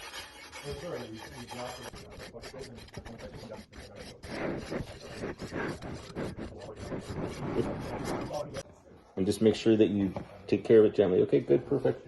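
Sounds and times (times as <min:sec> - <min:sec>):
hands rubbing pizza dough: 0:00.0 - 0:08.6.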